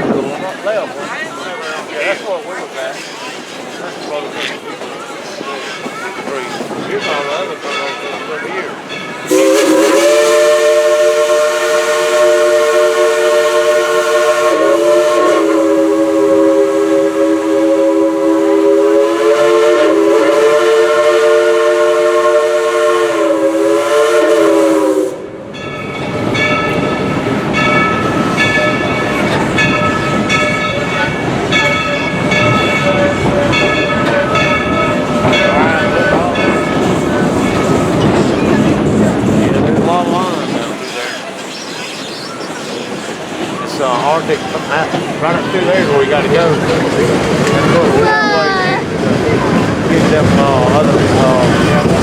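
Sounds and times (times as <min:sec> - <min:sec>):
train rumbling on rails: 0:00.0 - 0:52.0
steam whistle chord: 0:09.3 - 0:25.3
wheels squealing: 0:40.3 - 0:48.4.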